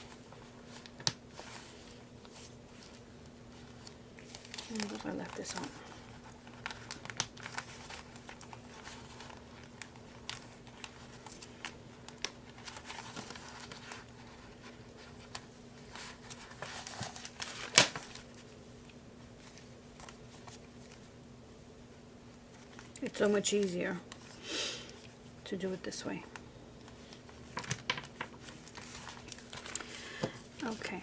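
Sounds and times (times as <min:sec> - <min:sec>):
paper rustling: 0:00.0 - 0:18.5, 0:26.9 - 0:31.0.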